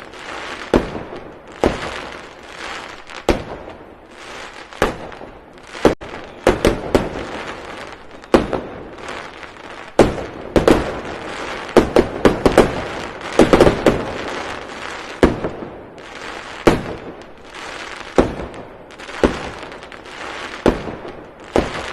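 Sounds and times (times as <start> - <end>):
loud sharp bangs and pops: 0.0 - 21.9.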